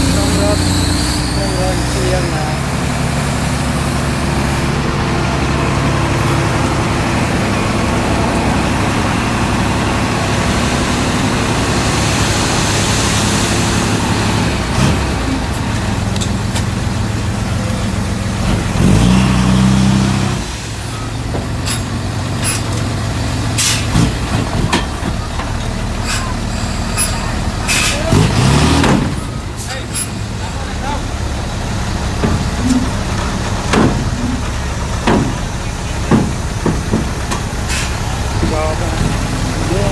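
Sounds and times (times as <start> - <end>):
diesel machinery running: 0.0 - 39.9.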